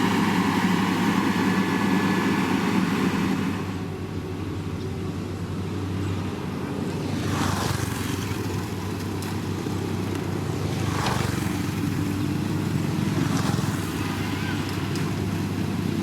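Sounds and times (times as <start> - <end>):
heavy machine engine humming: 0.0 - 16.0.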